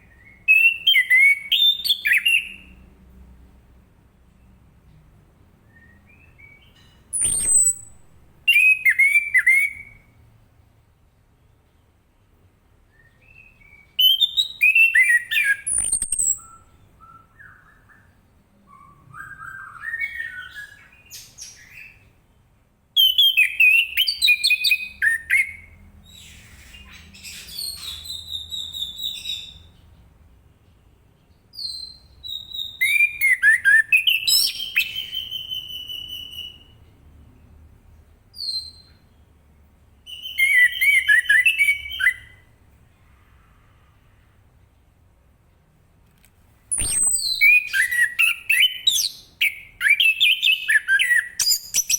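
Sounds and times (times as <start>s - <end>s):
bird singing whistles: 0.0s - 2.8s, 5.6s - 10.1s, 12.9s - 22.0s, 23.0s - 29.7s, 31.6s - 36.8s, 38.4s - 39.0s, 40.1s - 42.5s, 46.7s - 51.9s
bird twittering: 5.8s - 10.0s, 13.7s - 18.1s, 46.7s - 51.9s.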